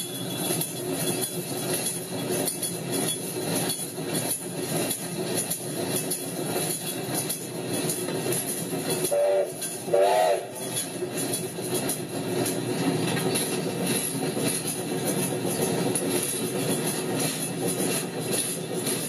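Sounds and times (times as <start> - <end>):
train rumbling on track: 0.0 - 19.0
train horn blasts: 9.0 - 10.6.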